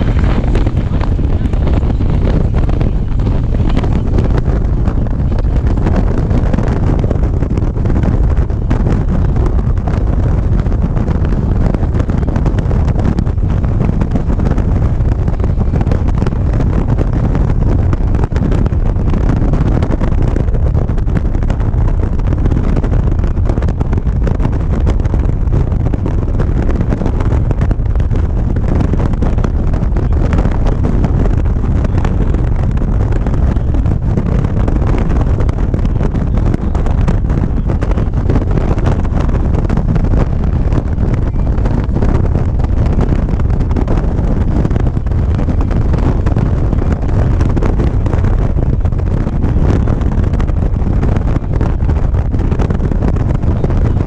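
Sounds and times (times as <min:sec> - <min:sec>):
motorcycle engine: 0:00.0 - 0:19.1
road noise: 0:00.0 - 0:54.0
wind rushing over microphone: 0:00.0 - 0:54.0.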